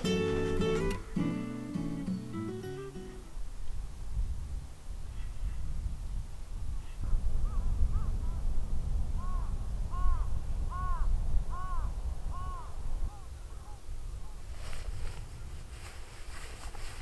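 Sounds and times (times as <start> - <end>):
bird calling: 9.2 - 13.8.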